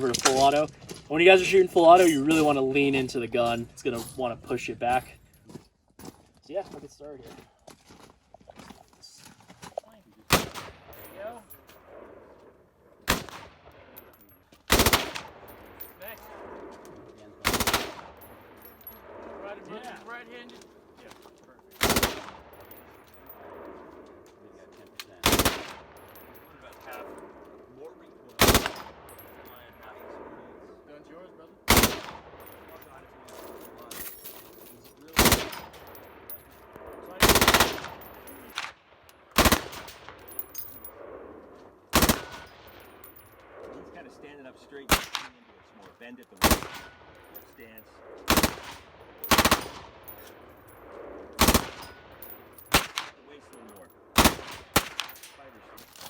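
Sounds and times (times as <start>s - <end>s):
machine gun firing: 10.3s - 10.9s, 13.1s - 13.5s, 14.7s - 15.5s, 17.4s - 18.2s, 21.8s - 22.8s, 25.2s - 26.0s, 28.4s - 29.4s, 31.7s - 32.8s, 35.2s - 35.8s, 37.2s - 40.2s, 41.9s - 42.8s, 44.9s - 45.4s, 46.4s - 47.0s, 48.2s - 50.2s, 51.0s - 53.2s, 54.1s - 55.4s.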